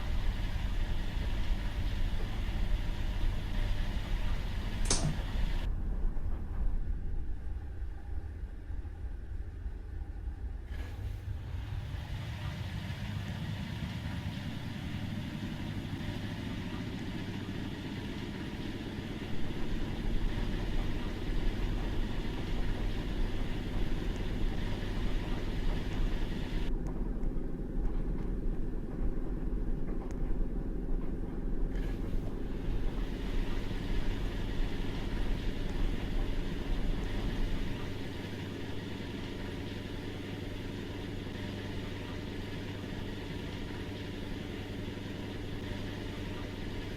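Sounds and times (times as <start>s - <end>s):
washing machine churning: 0.0s - 6.3s, 10.7s - 46.9s
washing machine motor whine: 0.0s - 46.9s.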